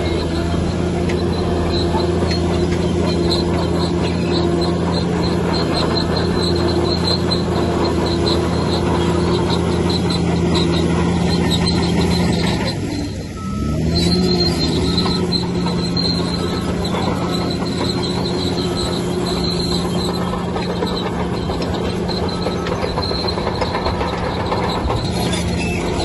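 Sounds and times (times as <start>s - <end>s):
bulldozer diesel engine running: 0.0s - 26.0s
short high-pitched squeaks: 0.0s - 26.0s.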